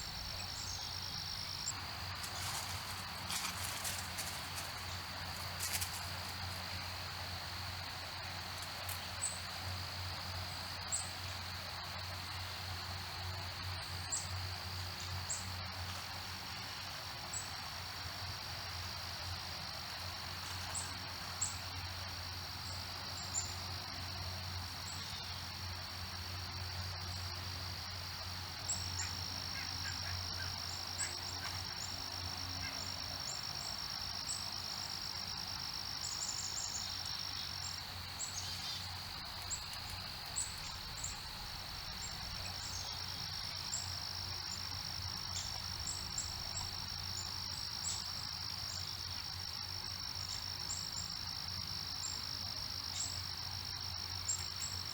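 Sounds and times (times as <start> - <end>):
insect chorus droning: 0.0 - 54.9.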